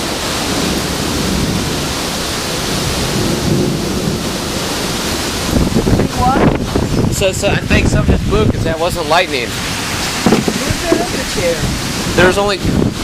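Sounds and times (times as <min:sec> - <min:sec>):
wind gusts buffeting microphone: 0:05.4 - 0:09.2, 0:10.2 - 0:13.0.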